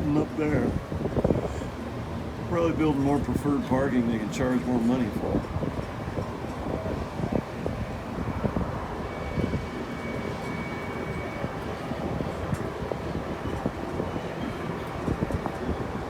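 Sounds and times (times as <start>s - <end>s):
tram rumbling: 0.0s - 16.0s
faint steady whine: 3.9s - 16.0s.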